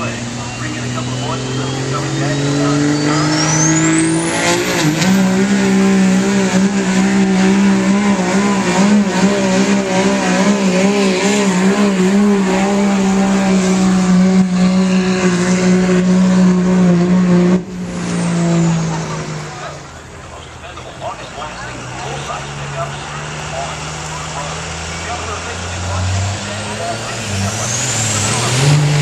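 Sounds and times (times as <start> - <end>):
vehicle engine revving high: 0.0 - 29.0.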